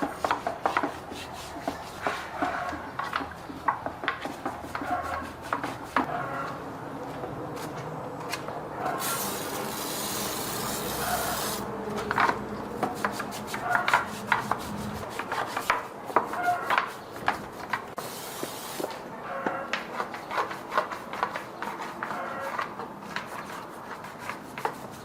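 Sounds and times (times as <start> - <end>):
rubbing and scraping parts: 8.8 - 18.0, 18.9 - 25.0.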